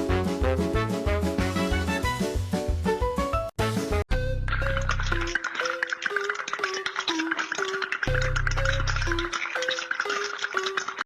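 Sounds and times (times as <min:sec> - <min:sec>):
upbeat plucked tune: 0:00.0 - 0:05.6.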